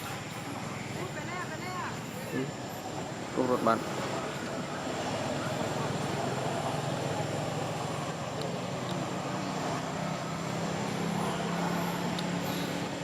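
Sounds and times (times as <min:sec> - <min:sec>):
outdoor background noise: 0:00.0 - 0:13.0
engine running low hum: 0:02.1 - 0:13.0.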